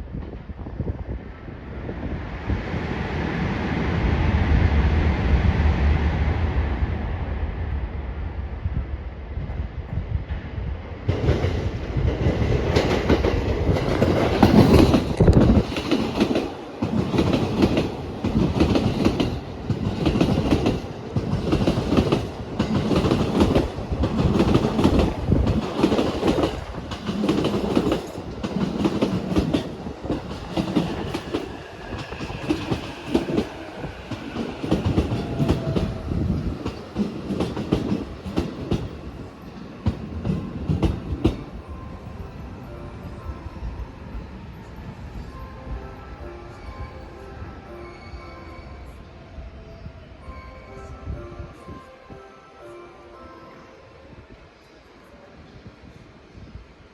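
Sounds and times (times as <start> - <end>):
train wheels clacking over rail joints: 11.1 - 39.2.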